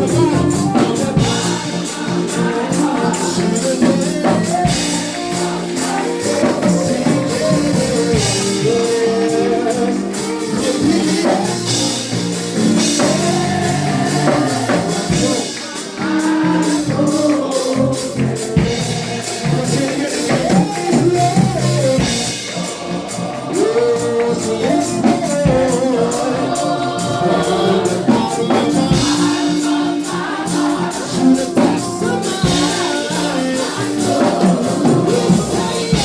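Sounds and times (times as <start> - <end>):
drums: 0.0 - 36.0
gospel music: 0.0 - 36.0
people singing: 0.0 - 36.0
tambourine shaken: 0.0 - 36.0.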